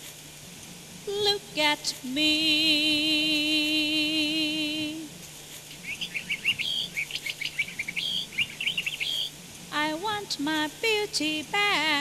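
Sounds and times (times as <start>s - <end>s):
small birds chirping: 5.7s - 9.4s.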